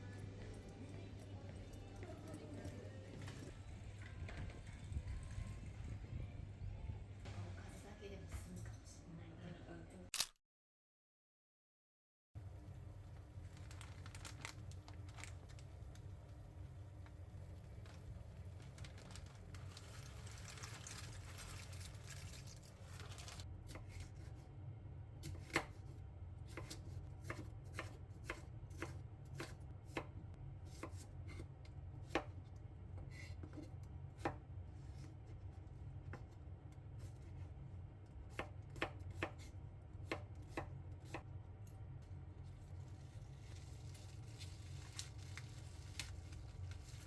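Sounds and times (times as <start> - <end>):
low steady hum: 0.0 - 10.1, 12.4 - 47.0
knife chopping on cutting board: 26.5 - 30.1.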